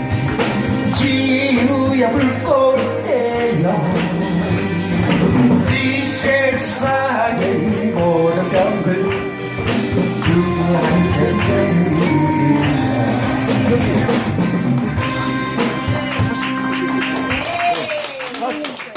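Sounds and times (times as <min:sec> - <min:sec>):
steady percussion beat: 0:00.0 - 0:17.8
worship band playing: 0:00.0 - 0:18.6
person singing: 0:00.8 - 0:14.4.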